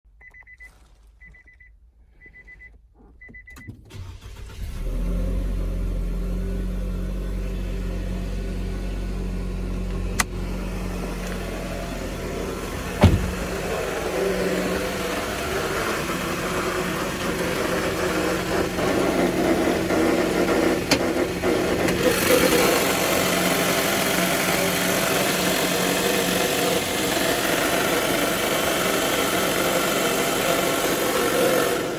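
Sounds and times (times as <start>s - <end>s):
short electronic beeps: 0.2s - 3.8s
car engine idling: 3.9s - 31.9s.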